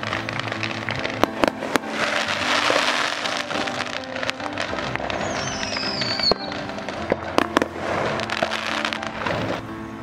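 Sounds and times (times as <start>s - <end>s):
fireworks crackling and banging: 0.0s - 10.0s
high falling whistle: 5.2s - 6.5s.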